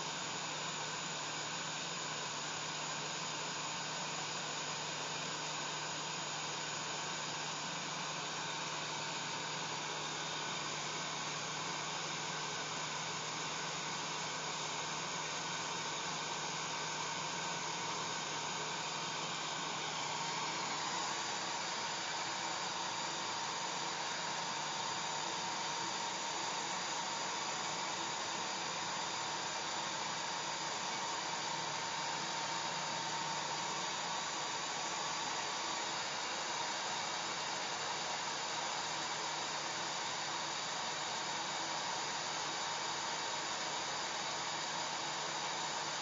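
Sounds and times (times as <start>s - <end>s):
hair dryer running: 14.4s - 46.0s.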